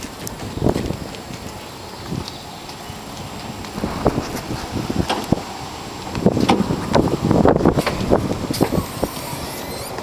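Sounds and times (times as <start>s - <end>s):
steady background noise: 0.0s - 10.0s
dull low thumps: 3.2s - 8.5s.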